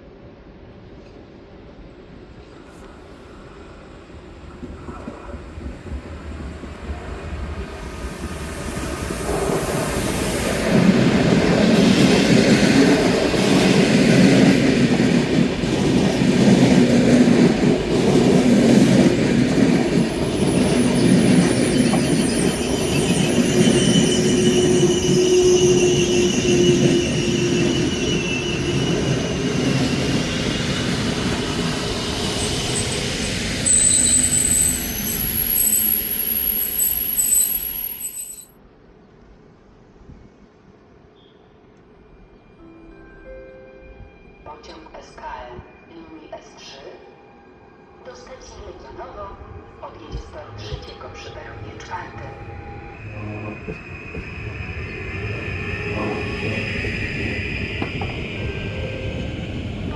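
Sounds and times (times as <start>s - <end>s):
train wheels and coaches rumbling: 3.3s - 38.5s, 48.4s - 59.9s
high wheel or brake squeals: 20.4s - 30.7s, 32.0s - 38.5s.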